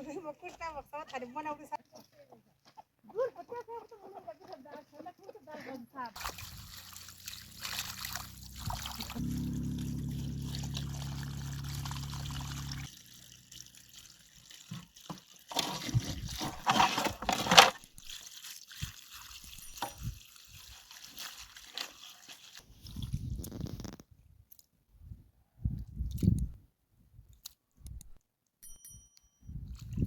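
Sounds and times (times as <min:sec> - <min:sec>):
water splashing: 0:06.2 - 0:22.7
water trickling and pouring: 0:06.2 - 0:23.5
low hum: 0:06.6 - 0:12.9.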